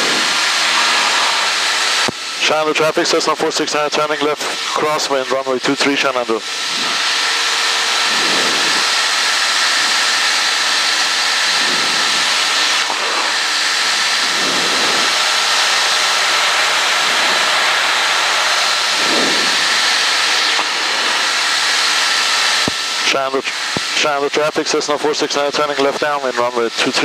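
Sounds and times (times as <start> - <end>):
rush of air: 0.0 - 2.1, 11.4 - 23.0
small plane engine drone: 0.0 - 27.0.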